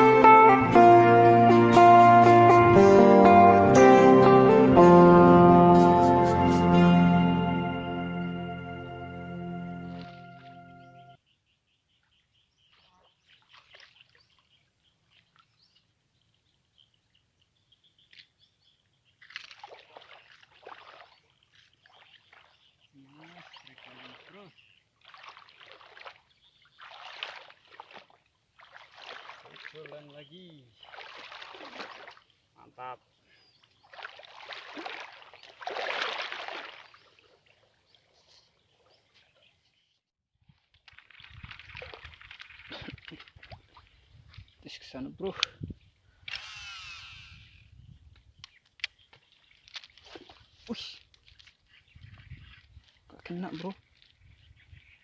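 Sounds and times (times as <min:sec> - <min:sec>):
water splashing and rustling: 0:09.6 - 0:10.9, 0:12.6 - 0:39.8, 0:40.4 - 0:45.4, 0:48.1 - 0:55.0.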